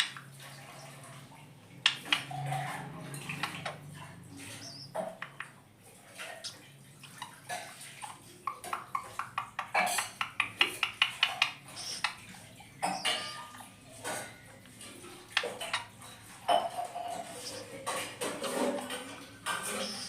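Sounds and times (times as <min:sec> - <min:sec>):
parakeet clicks and taps: 0:01.8 - 0:03.8, 0:04.9 - 0:05.6, 0:08.5 - 0:12.2, 0:14.2 - 0:17.6
parakeet high squeaks: 0:11.7 - 0:12.2, 0:12.8 - 0:13.6, 0:19.7 - 0:20.0.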